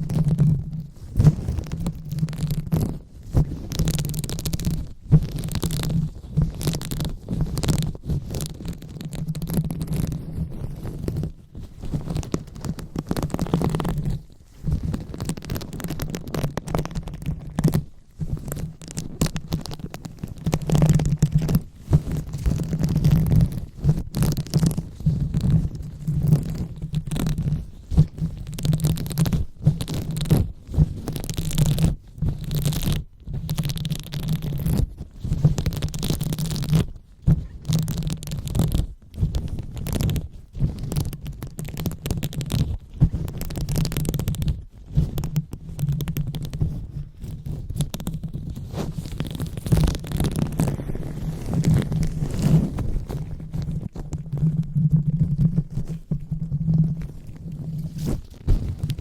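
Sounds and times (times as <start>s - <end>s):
hands rubbing on microphone: 0.0s - 59.0s.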